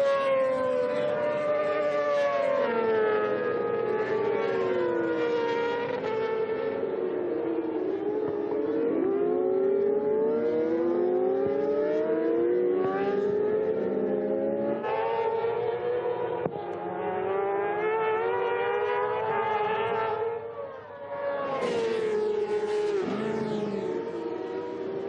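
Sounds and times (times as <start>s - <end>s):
racing motorcycle engines revving: 0.0s - 25.0s.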